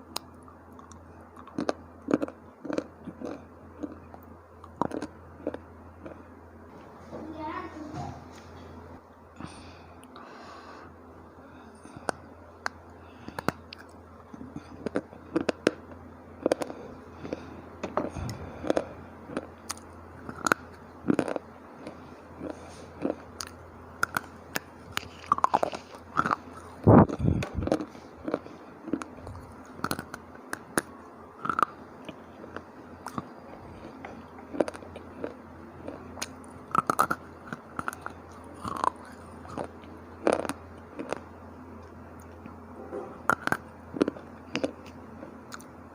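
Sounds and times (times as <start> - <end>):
chips being chewed: 0.0 - 6.2, 11.9 - 42.6, 43.2 - 45.7.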